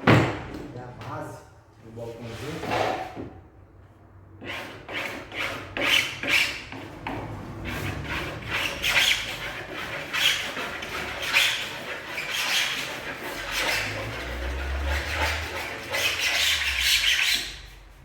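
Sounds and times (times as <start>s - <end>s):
scraping edge of wood panel: 4.4s - 17.8s.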